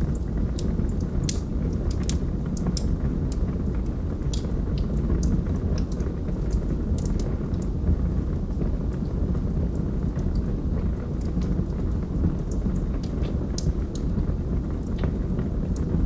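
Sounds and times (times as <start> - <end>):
burning logs crackling and popping: 0.0 - 16.0
flames rumbling: 0.0 - 16.0.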